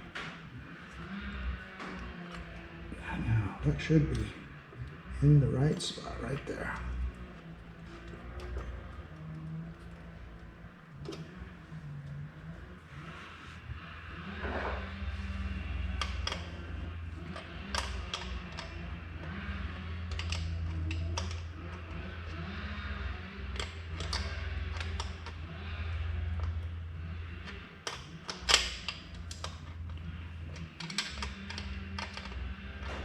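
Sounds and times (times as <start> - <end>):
steady low hum: 0.0 - 33.0
metallic clicks of hand tools: 15.3 - 33.0.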